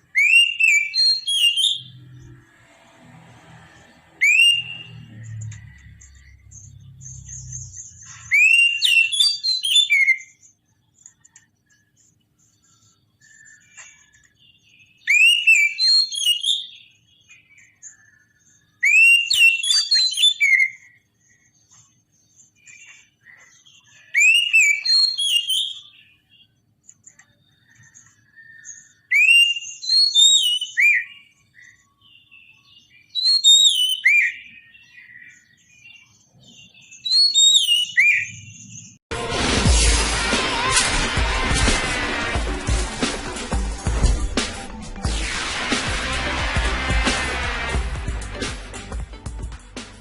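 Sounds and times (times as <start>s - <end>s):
bird whistled song: 0.0s - 2.4s, 4.1s - 11.9s, 12.5s - 39.0s
faint bird chirps: 3.7s - 39.0s
music: 39.1s - 50.0s.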